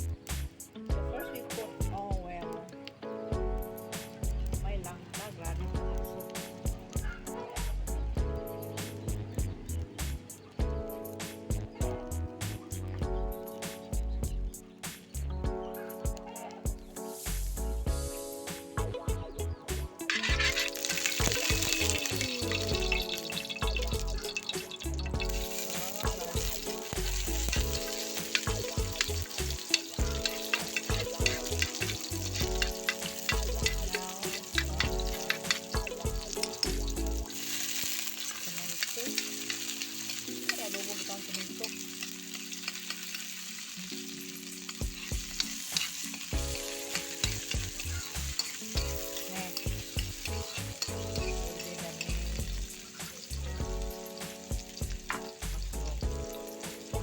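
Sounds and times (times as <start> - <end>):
food sizzling in oil: 0.0 - 57.0
utensil scraping a pan: 20.0 - 53.4.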